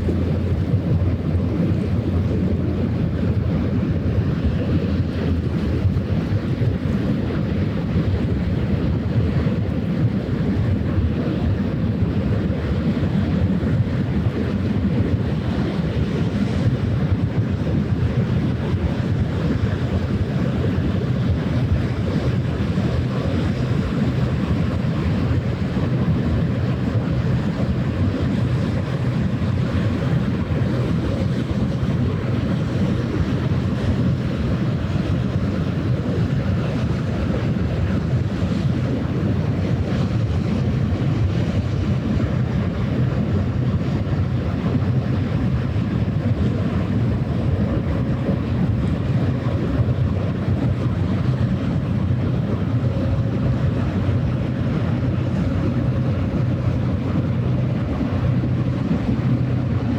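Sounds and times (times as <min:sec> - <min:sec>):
low even drone: 0:00.0 - 0:06.0
moving water: 0:00.0 - 0:59.9
wind buffeting microphone: 0:00.0 - 0:59.9.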